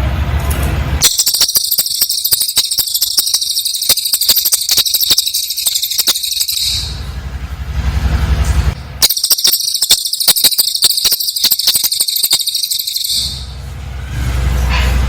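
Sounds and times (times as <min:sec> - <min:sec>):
bird singing rapid trill: 0:01.0 - 0:07.2, 0:09.0 - 0:13.6.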